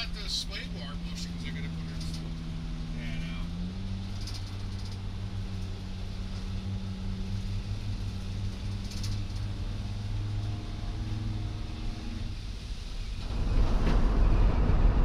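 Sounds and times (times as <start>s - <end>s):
van engine and road drone: 0.0s - 15.0s.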